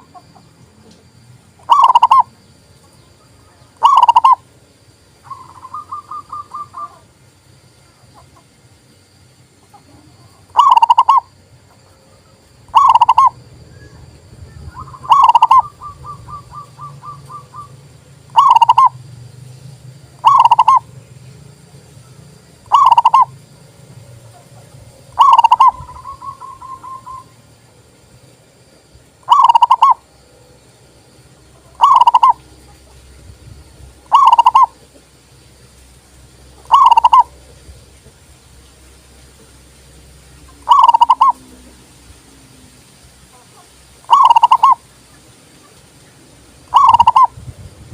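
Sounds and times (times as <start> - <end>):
dove cooing: 1.6 - 2.3, 3.2 - 4.4, 5.2 - 7.1, 9.7 - 11.8, 12.7 - 19.0, 20.2 - 20.9, 22.7 - 23.4, 24.3 - 27.4, 29.2 - 30.1, 31.5 - 33.1, 34.0 - 35.1, 36.6 - 37.6, 40.4 - 41.8, 43.3 - 44.9, 46.7 - 47.4.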